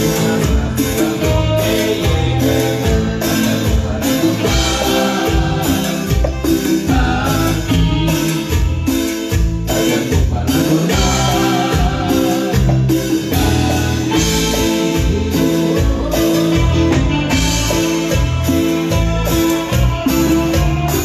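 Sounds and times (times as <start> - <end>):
band playing latin dance music: 0.0 - 21.0.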